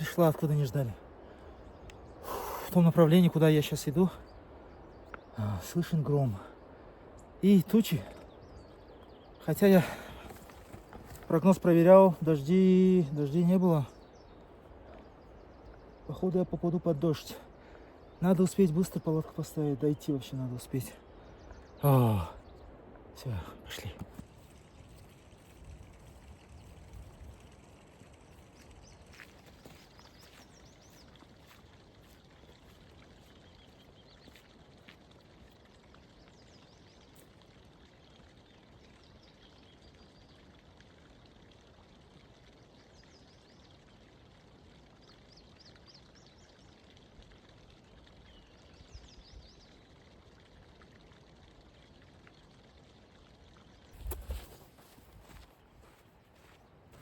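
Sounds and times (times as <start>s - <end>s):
mountain stream rushing: 0.0s - 26.2s.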